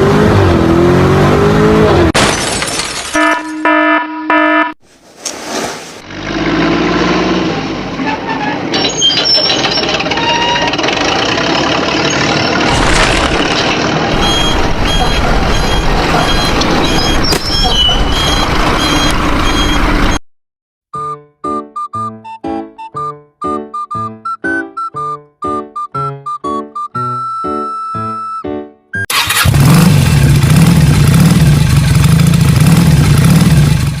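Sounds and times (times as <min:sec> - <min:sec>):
vehicle engine running: 0:09.8 - 0:20.2, 0:29.1 - 0:34.0
electronic reversing beeps: 0:14.2 - 0:20.2.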